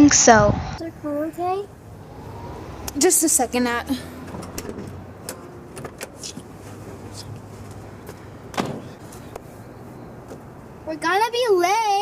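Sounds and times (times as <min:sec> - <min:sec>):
thud: 0:08.5 - 0:09.0.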